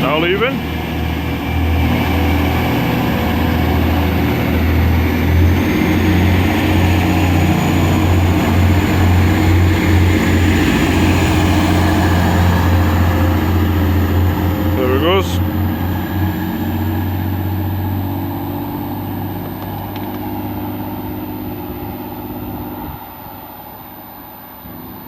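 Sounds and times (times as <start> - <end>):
diesel engine drone: 0.0 - 25.0
faint high whine: 8.1 - 15.2.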